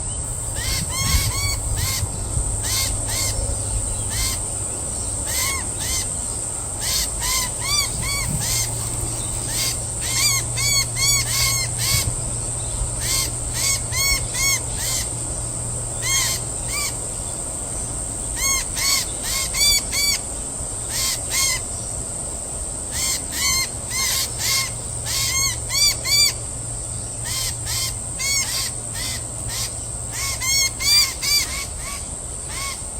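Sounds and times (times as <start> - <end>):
steady high-pitched hiss: 0.0 - 32.9
bird calling: 0.4 - 12.2, 16.0 - 17.0, 27.1 - 32.9.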